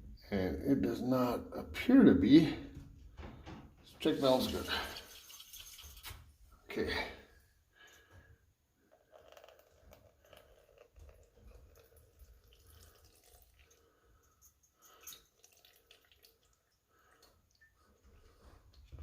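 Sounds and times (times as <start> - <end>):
fuel dripping and trickling: 9.4 - 19.0.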